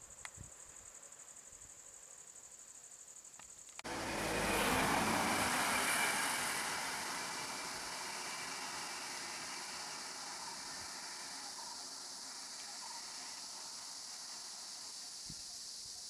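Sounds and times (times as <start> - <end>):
motor vehicle passing: 3.8 - 15.0.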